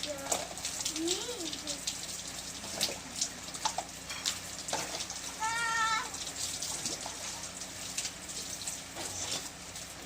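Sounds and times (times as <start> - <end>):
rainwater splashing and pouring: 0.0 - 10.0
high drawn-out cry: 5.4 - 6.2.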